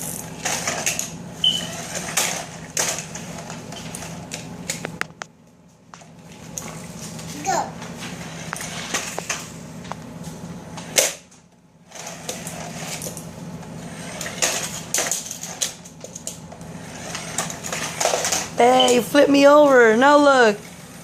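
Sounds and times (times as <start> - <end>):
steady low hum: 0.0 - 21.0
plastic toy cars clattering: 0.4 - 4.8, 11.9 - 13.2, 13.9 - 19.2.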